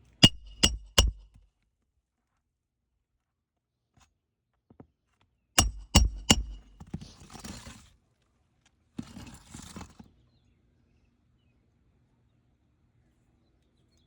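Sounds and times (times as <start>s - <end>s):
metal tool clinking: 0.2s - 1.2s, 5.6s - 6.7s
tool scraping asphalt shingles: 5.6s - 7.8s.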